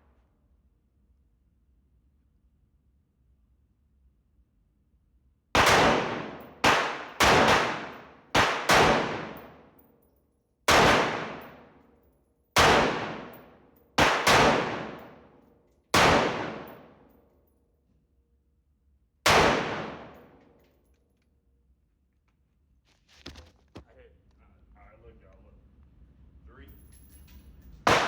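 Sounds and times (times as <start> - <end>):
handgun shots echoing: 5.6 - 9.8, 10.7 - 11.8, 12.6 - 15.3, 16.0 - 17.0, 19.3 - 20.4.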